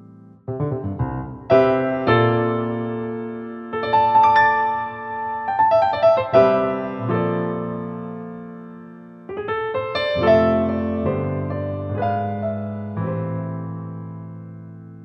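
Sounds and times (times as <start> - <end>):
slow soft piano music: 0.0 - 15.0.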